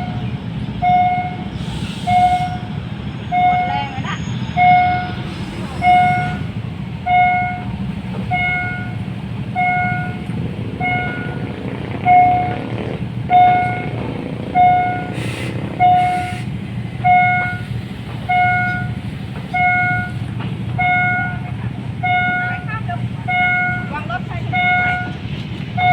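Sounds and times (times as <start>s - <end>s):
level-crossing warning bell: 0.0s - 1.5s, 2.1s - 25.9s
diesel train rumble: 0.0s - 25.9s
short hisses: 1.5s - 2.5s, 15.1s - 16.6s.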